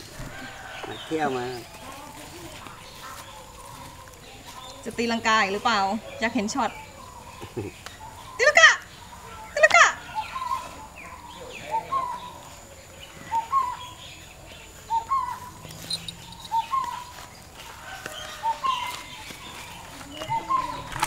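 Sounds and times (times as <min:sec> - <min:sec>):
faint bird chirps: 0:00.0 - 0:21.0.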